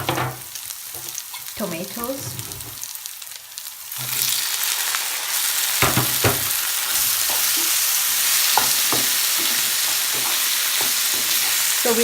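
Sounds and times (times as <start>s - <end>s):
vegetables sizzling in hot oil: 0.0s - 12.0s
utensil knocking against pan: 5.8s - 6.5s, 8.5s - 11.6s.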